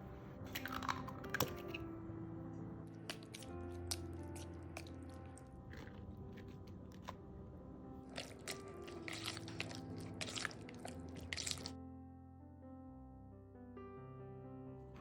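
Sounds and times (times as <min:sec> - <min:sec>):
background music: 0:00.0 - 0:15.0
food crunching and clicking: 0:00.5 - 0:01.8, 0:03.1 - 0:07.2, 0:08.0 - 0:11.7.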